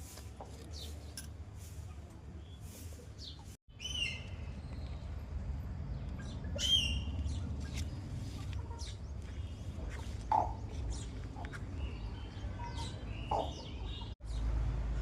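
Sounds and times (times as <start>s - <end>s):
bird whistling calls: 6.6s - 7.1s.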